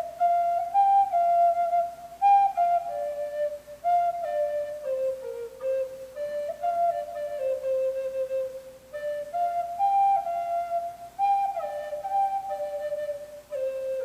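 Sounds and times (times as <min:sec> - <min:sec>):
flute playing slow melody: 0:00.0 - 0:14.0.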